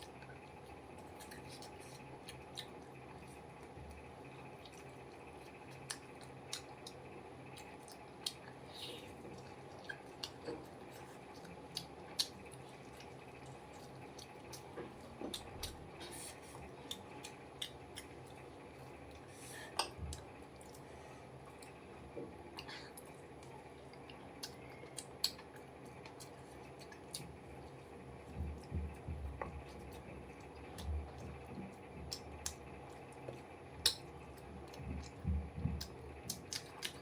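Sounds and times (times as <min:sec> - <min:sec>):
chewing and food handling: 0:00.0 - 0:37.0
faint steady hum: 0:00.0 - 0:37.0.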